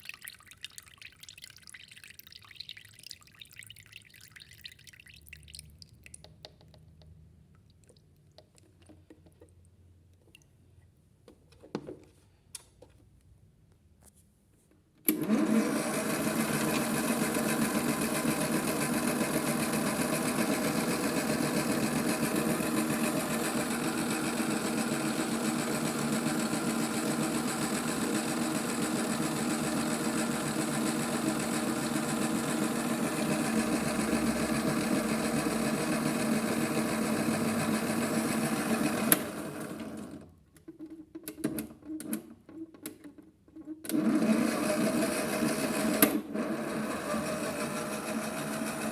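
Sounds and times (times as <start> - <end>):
toy washing machine motor whir: 15.1 - 40.2, 43.9 - 48.9.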